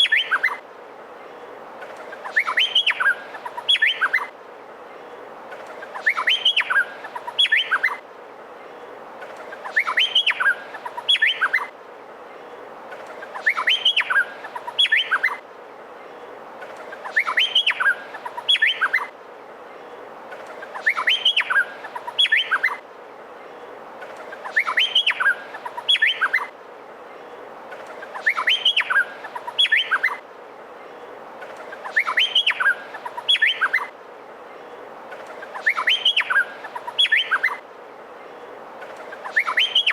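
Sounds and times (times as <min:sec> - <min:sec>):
bird singing whistled notes: 0:00.0 - 0:00.6, 0:02.2 - 0:04.3, 0:05.9 - 0:08.0, 0:09.6 - 0:11.7, 0:13.3 - 0:15.4, 0:17.0 - 0:19.1, 0:20.7 - 0:22.8, 0:24.4 - 0:26.5, 0:28.1 - 0:30.2, 0:31.8 - 0:33.9, 0:35.5 - 0:37.6, 0:39.1 - 0:39.9
steady hiss: 0:00.0 - 0:39.9.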